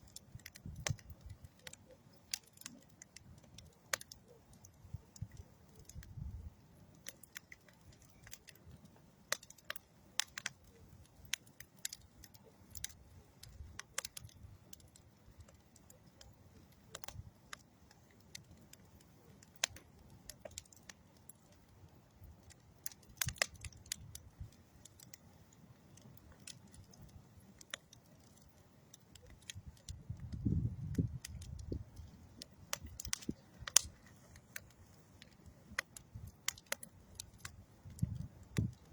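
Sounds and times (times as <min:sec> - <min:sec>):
low rumble of burning: 0:00.0 - 0:38.9
sharp pops of fire: 0:00.0 - 0:38.9
wood fire crackling: 0:00.0 - 0:38.9.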